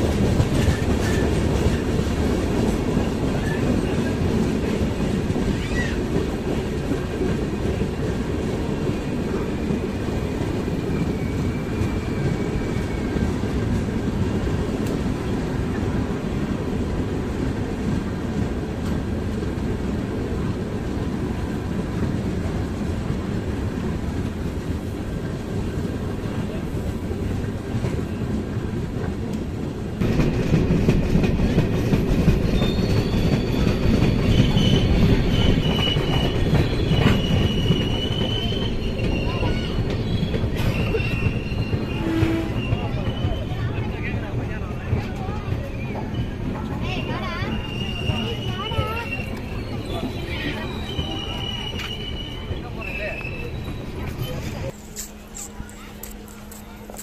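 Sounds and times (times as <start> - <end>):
train wheels rumbling on track: 0.0 - 57.0
high wheel squeals: 32.4 - 43.8, 45.6 - 54.7.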